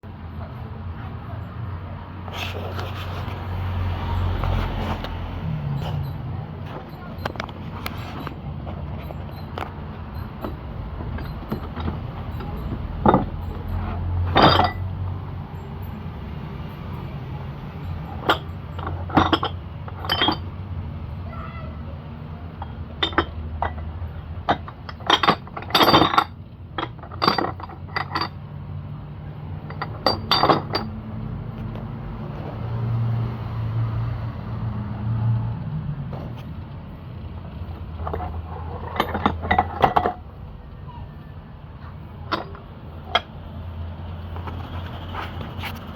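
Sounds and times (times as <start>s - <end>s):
metal weights clinking: 5.7s - 15.0s, 15.6s - 20.5s, 22.6s - 28.4s, 29.6s - 31.0s, 37.9s - 40.2s.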